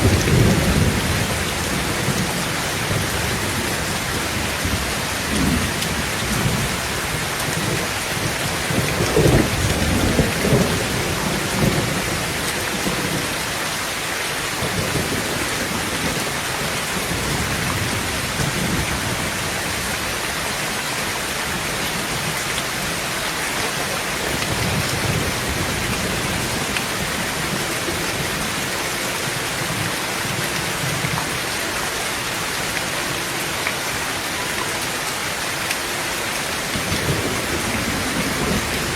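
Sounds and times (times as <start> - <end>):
rolling thunder: 0.0 - 13.4, 36.7 - 38.9
heavy rain on tin roof: 0.0 - 38.9.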